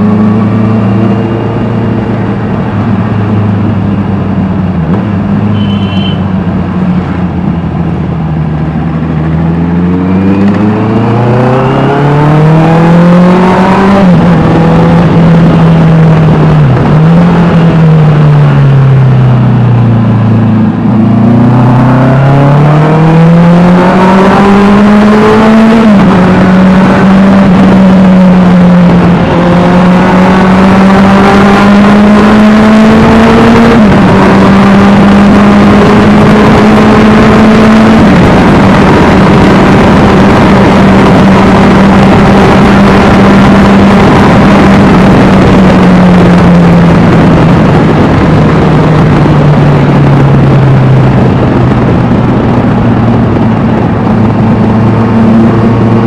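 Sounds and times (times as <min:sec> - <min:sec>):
motorcycle engine accelerating: 0:00.0 - 0:05.8, 0:06.4 - 0:56.0.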